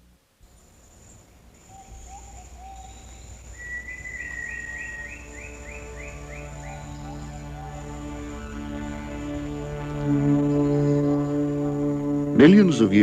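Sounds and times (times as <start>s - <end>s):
low held music tones: 0.0s - 13.0s
bird calls: 0.5s - 11.3s
insect high-pitched buzz: 0.5s - 13.0s.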